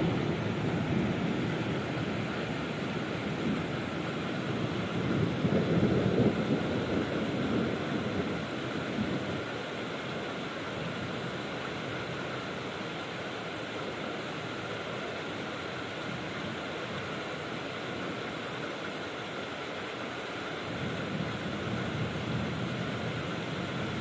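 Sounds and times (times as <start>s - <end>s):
low thunder rumble: 0.0s - 9.4s
heavy rain pouring: 0.0s - 24.0s.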